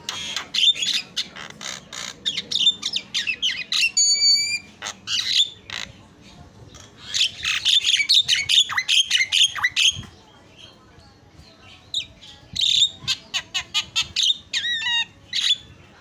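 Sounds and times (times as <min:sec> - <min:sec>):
myna bird squawking and chattering: 0:00.0 - 0:10.2, 0:11.9 - 0:15.8.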